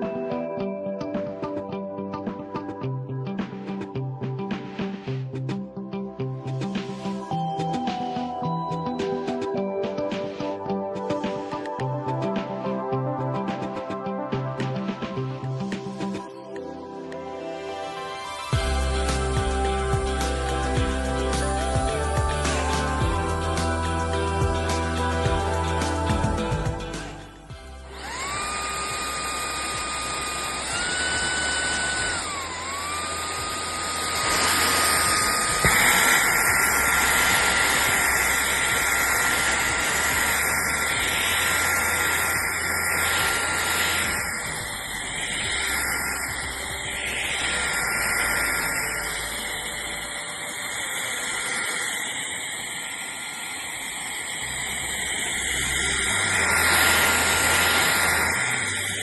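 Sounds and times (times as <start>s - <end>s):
vacuum cleaner motor whine: 17.5s - 59.0s
rushing airflow hiss: 18.2s - 59.0s.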